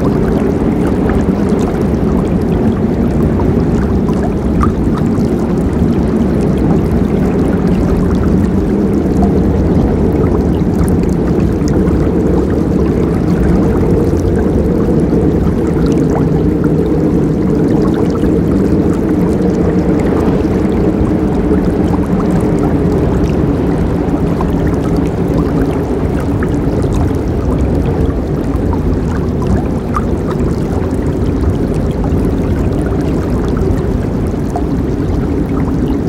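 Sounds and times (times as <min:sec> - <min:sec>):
water splashes and trickles: 0:00.0 - 0:36.0.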